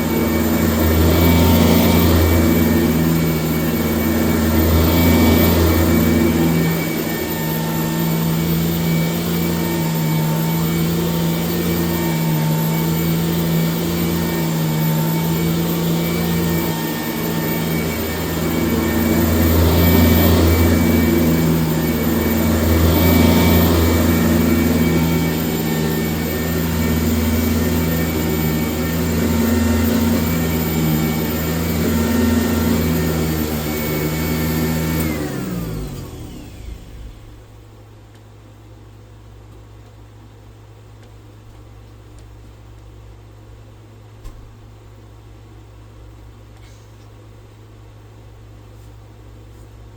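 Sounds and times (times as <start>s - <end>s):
vacuum cleaner running: 0.0s - 37.7s.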